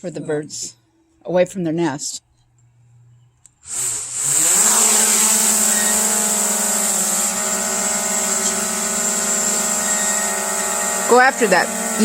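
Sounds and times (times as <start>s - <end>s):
drone propellers whining: 3.2s - 12.0s.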